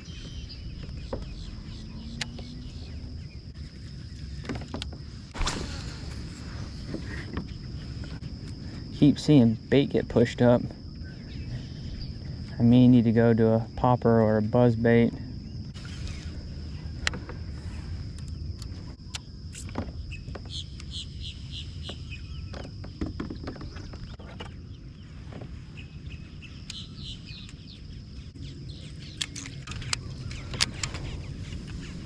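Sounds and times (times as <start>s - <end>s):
bird chirping: 0.0s - 5.7s, 20.0s - 32.0s
high insect drone: 0.0s - 32.0s.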